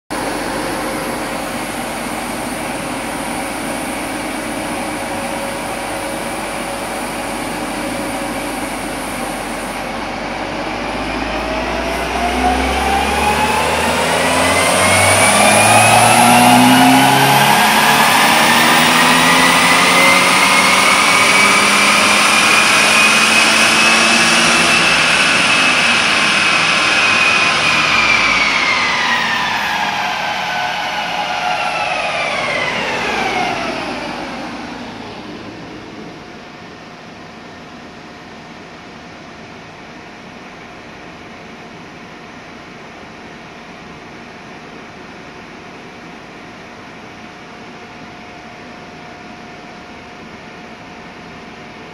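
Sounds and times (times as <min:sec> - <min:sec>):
wheels spinning dyno rollers: 0:00.1 - 0:36.7
car engine revving on a dyno: 0:00.1 - 0:36.9.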